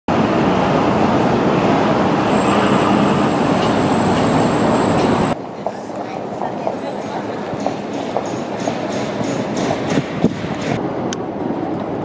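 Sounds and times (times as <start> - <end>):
train running past: 0.1 - 12.0
thin high whine: 0.3 - 5.4.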